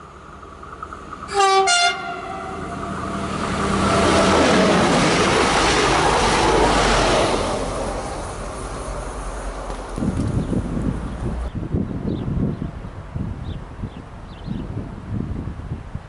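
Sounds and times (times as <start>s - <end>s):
railcar passing: 0.0s - 16.0s
two-note train horn: 1.3s - 2.8s.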